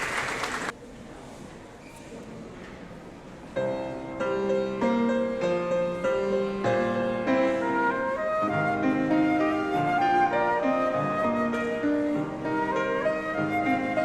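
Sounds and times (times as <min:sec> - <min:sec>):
piano sustained chords: 0:03.6 - 0:14.0.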